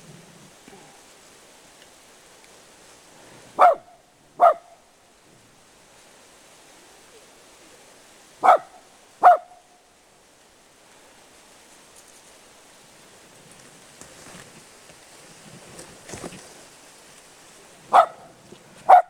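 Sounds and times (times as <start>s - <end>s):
dog barking: 3.6s - 4.8s, 8.4s - 9.6s, 17.9s - 19.0s.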